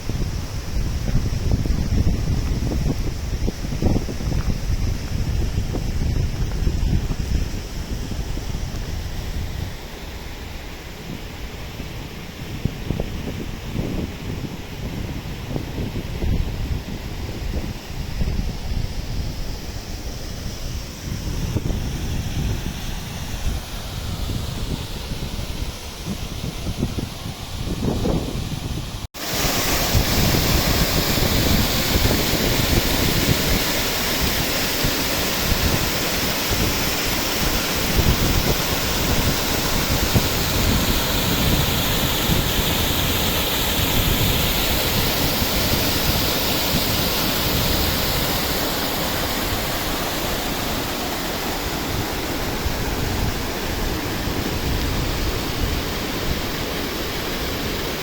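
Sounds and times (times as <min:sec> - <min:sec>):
river water rushing: 0:29.2 - 0:58.0.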